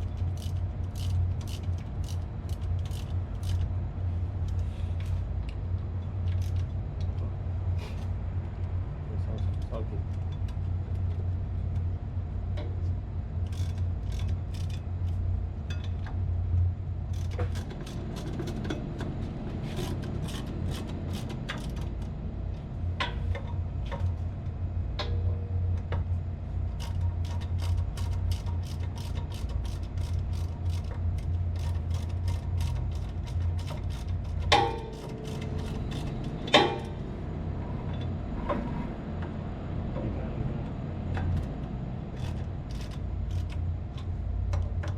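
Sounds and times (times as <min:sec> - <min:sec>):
low machinery hum: 0:00.0 - 0:44.9
sharp ringing metal knocks: 0:34.5 - 0:35.2, 0:36.5 - 0:37.0.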